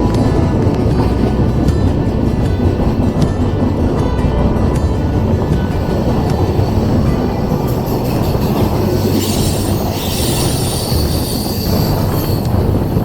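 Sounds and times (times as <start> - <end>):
metallic wheel squeal: 0.0 - 13.0
train rumbling on rails: 0.0 - 13.0.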